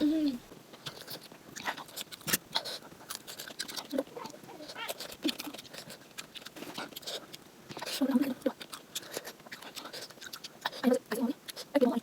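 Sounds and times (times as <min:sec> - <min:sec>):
wet chewing and crunching: 0:00.5 - 0:12.0.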